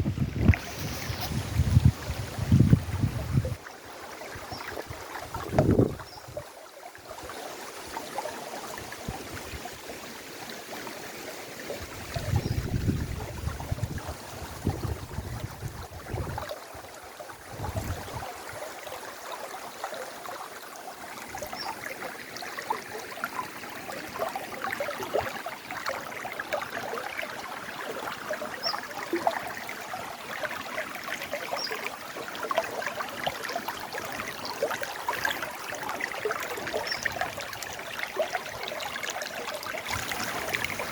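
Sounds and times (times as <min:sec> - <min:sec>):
wind rumble on microphone: 0:00.0 - 0:03.6, 0:04.9 - 0:06.4, 0:12.0 - 0:16.5, 0:17.4 - 0:18.3
river water flowing: 0:00.0 - 0:40.9.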